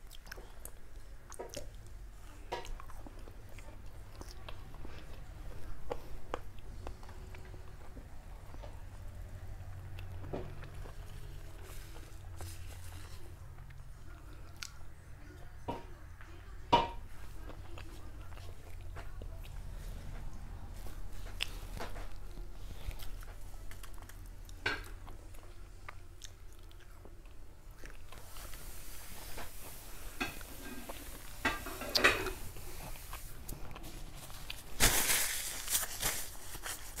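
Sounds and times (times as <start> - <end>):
person chewing food: 0.0 - 14.8, 17.2 - 34.8
mouth clicks and crunches: 21.2 - 28.6.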